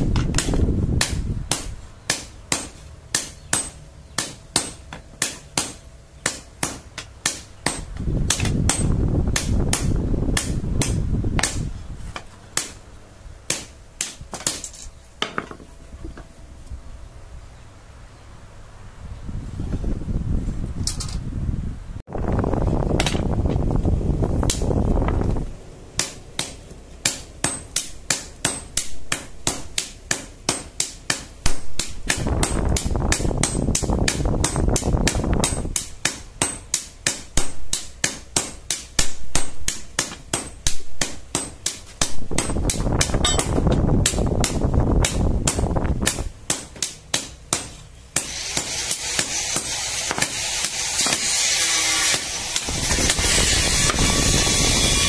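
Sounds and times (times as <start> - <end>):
hammer striking steel on anvil: 0.2 - 11.6, 26.0 - 55.0
steady rushing noise: 18.6 - 26.5.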